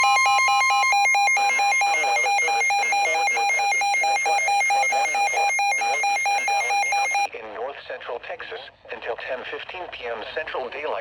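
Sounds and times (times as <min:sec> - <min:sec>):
rapid pulsing beep: 0:00.0 - 0:07.3
warbling electronic data tones: 0:00.0 - 0:07.3.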